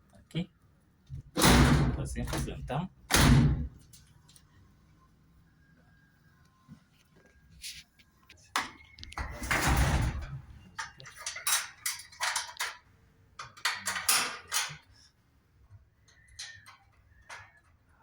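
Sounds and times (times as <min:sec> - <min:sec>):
knocks and clacks of panels: 0:01.1 - 0:03.8, 0:08.6 - 0:12.8.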